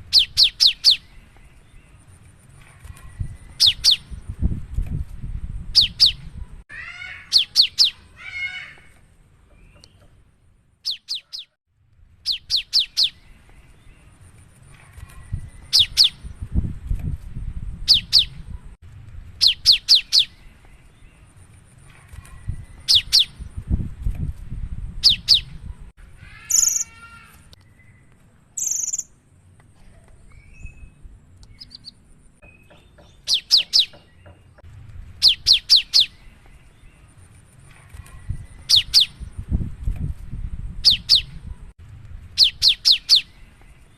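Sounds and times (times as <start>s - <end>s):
bird singing sharp high notes: 28.6s - 29.1s.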